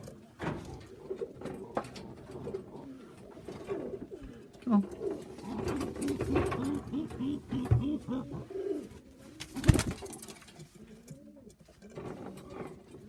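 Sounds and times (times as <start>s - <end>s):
pigeons cooing: 0.0s - 10.2s.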